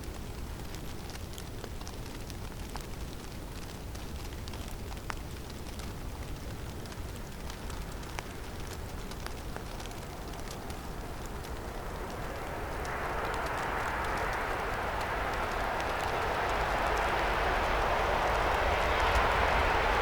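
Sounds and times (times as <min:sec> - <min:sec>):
falling snow and ice ticking: 0:00.0 - 0:20.0
low rush of wind: 0:05.3 - 0:20.0.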